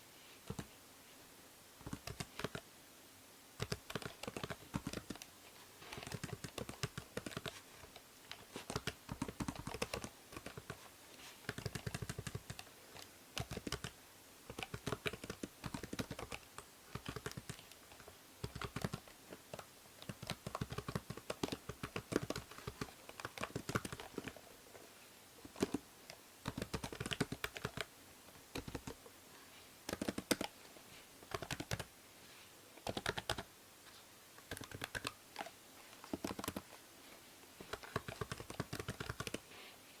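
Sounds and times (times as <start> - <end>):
faint microphone hiss: 0.0 - 40.0
keyboard typing: 0.5 - 0.7, 1.8 - 2.6, 3.6 - 5.3, 5.9 - 10.8, 11.4 - 24.4, 25.5 - 27.9, 28.5 - 29.0, 29.9 - 30.6, 31.2 - 31.9, 32.8 - 33.5, 34.4 - 36.8, 37.6 - 39.4.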